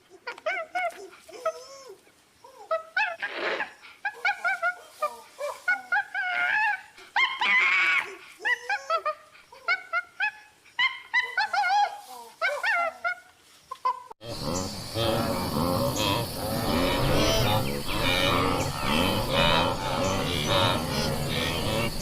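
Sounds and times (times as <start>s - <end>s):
puppies whimpering and yipping: 4.1s - 13.3s.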